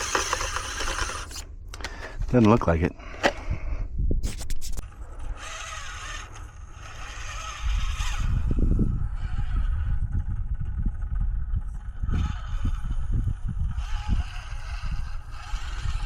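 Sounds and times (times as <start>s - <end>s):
small electric motor whirring: 0.0s - 2.0s, 4.2s - 16.0s
heavy uneven low rumble: 7.6s - 16.0s.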